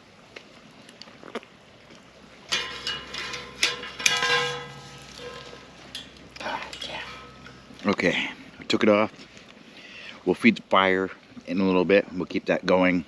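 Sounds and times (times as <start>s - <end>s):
metal cooking gear clanking: 2.5s - 7.6s.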